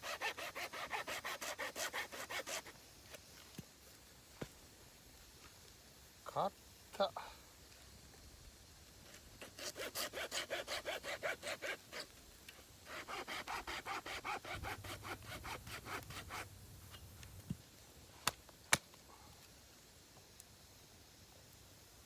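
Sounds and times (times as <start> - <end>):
hand saw cutting wood: 0.0 - 2.8, 9.4 - 12.1, 12.8 - 17.3.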